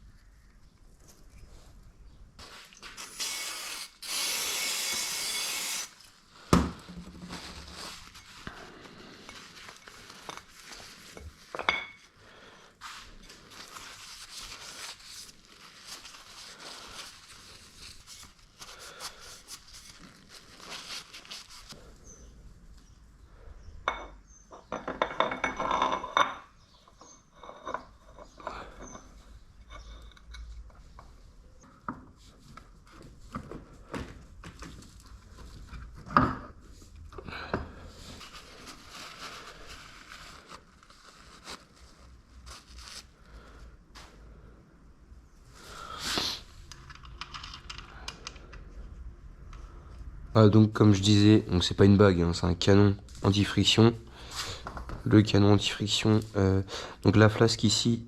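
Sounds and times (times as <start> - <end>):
loud steady hiss: 3.0 - 6.0.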